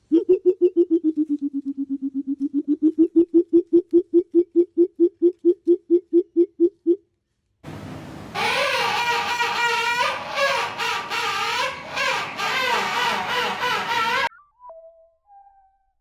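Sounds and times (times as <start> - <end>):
bird hooting rapidly: 7.8 - 14.3.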